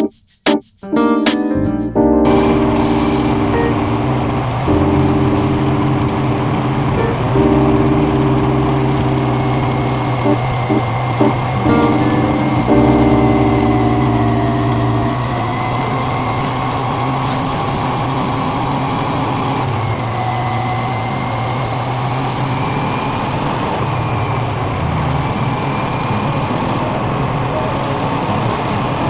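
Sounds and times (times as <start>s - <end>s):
vehicle engine running: 2.4s - 15.7s
road and wind noise: 13.5s - 29.0s.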